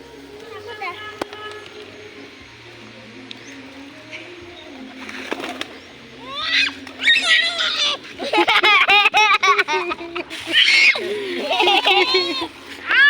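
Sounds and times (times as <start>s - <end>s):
pigeons cooing: 3.4s - 12.8s
child squealing: 6.2s - 8.0s, 10.5s - 11.0s, 12.0s - 13.0s.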